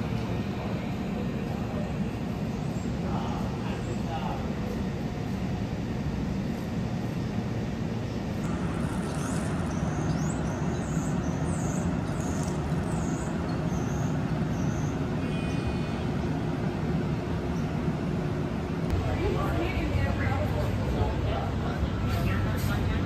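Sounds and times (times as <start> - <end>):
electric train humming: 0.0 - 23.0
birds chirping: 6.2 - 18.5.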